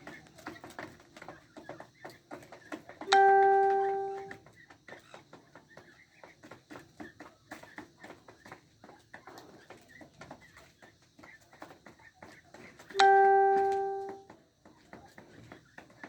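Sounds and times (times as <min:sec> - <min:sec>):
bell-like chime: 0:03.1 - 0:04.4, 0:13.0 - 0:14.2.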